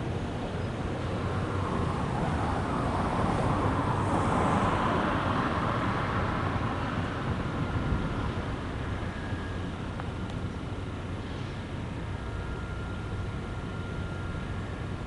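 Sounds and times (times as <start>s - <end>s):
vehicle passing by: 0.8s - 8.8s.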